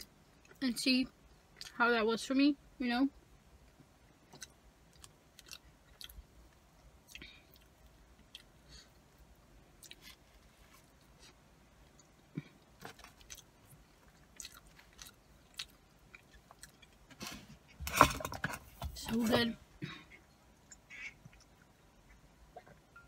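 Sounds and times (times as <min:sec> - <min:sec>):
chewing fries: 0:03.7 - 0:17.8, 0:20.6 - 0:22.9.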